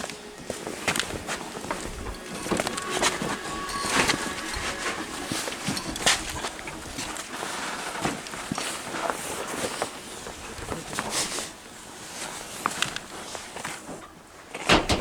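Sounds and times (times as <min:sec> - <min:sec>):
knocks and clatters: 0:14.6 - 0:15.0.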